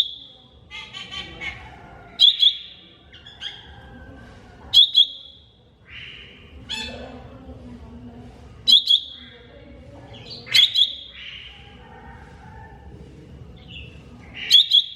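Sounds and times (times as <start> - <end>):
bird chattering warbles: 14.3 - 14.9.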